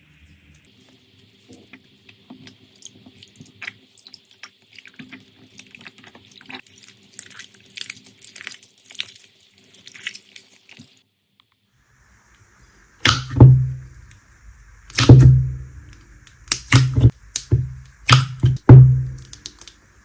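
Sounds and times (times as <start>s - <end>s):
faint steady hum: 11.0s - 20.0s
slime squished by hand: 14.9s - 19.8s.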